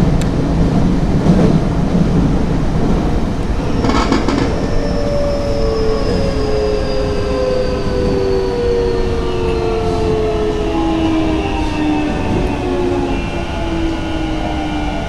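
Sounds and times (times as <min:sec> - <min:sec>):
train running rumble: 0:00.0 - 0:15.0
electric train motor whine: 0:03.3 - 0:15.0.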